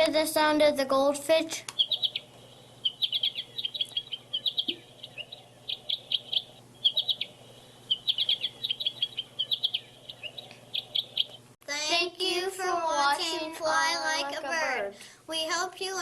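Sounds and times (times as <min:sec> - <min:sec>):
recorded bird twittering from speaker: 0:01.7 - 0:11.5.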